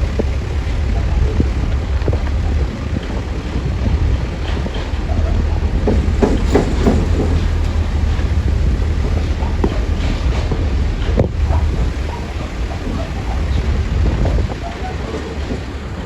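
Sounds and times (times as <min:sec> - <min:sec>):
diesel engine rumbling: 0:00.0 - 0:16.0
wind noise on microphone: 0:00.0 - 0:16.0
short knocks: 0:04.5 - 0:13.6.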